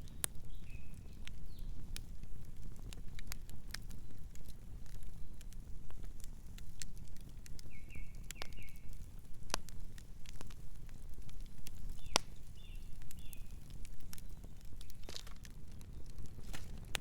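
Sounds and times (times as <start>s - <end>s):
bird chirping softly: 0.0s - 2.0s, 7.4s - 9.1s, 11.3s - 16.8s
campfire crackling and popping: 0.0s - 17.0s.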